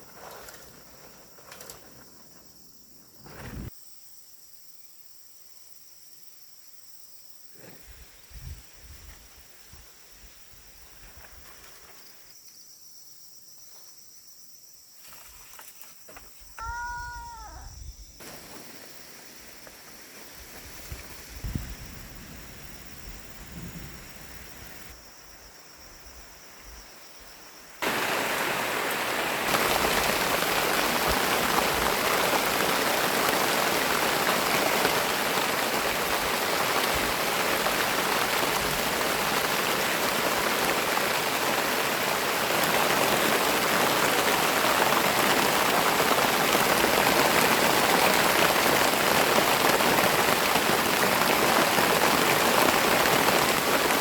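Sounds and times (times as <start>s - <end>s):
heavy rain falling: 27.8s - 54.0s.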